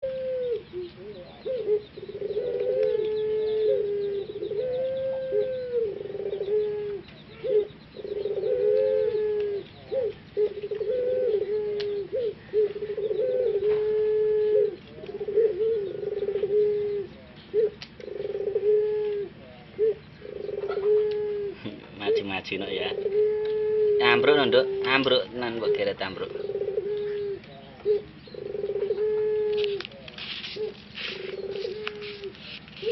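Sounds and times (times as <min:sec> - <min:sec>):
dove cooing: 0:00.0 - 0:32.9.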